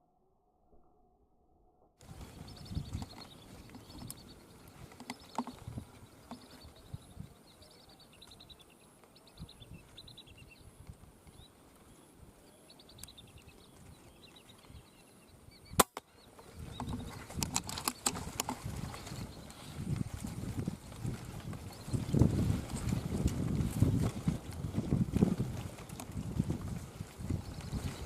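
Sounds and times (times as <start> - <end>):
rustling and clicking handling noise: 2.0 - 6.7, 15.9 - 28.0
high chirping bird calls: 2.0 - 19.9.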